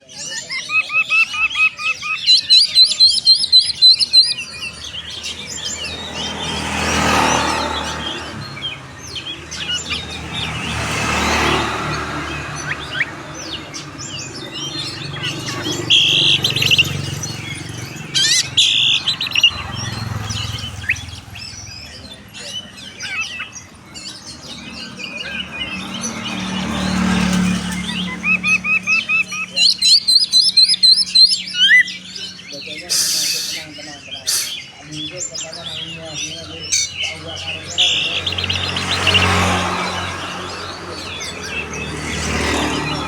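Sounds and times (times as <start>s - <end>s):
songbirds singing and chirping: 0.0s - 43.0s
broad rushing noise: 2.7s - 22.3s, 37.5s - 43.0s.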